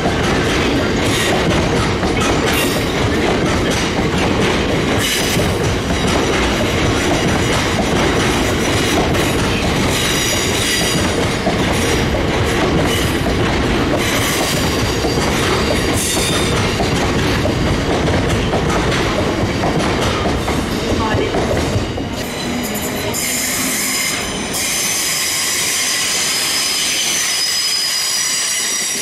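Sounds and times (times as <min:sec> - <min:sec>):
train wheels rumbling on track: 0:00.0 - 0:29.0
high wheel squeals: 0:22.2 - 0:29.0.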